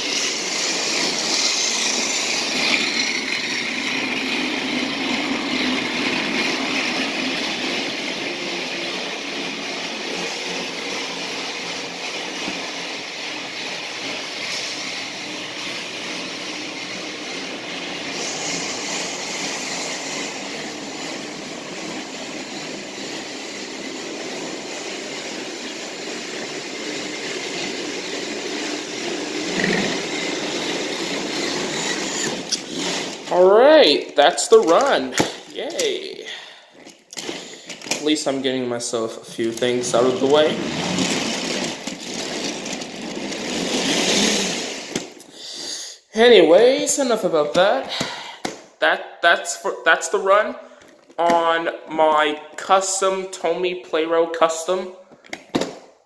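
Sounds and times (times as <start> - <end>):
toy train motor whirring: 0.0 - 38.0, 39.2 - 46.0
toy train wheels rattling: 0.0 - 38.3, 39.2 - 45.6.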